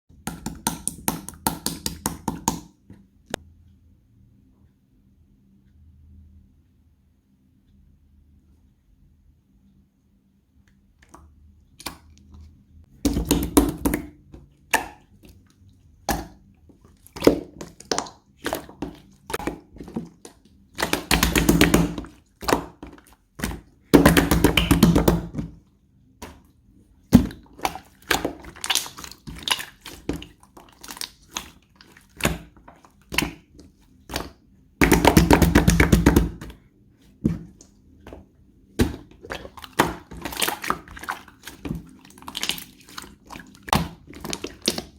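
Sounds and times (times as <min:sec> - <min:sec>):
slime squished by hand: 0:27.1 - 0:44.9
slime crackling: 0:27.2 - 0:36.4, 0:38.8 - 0:44.9.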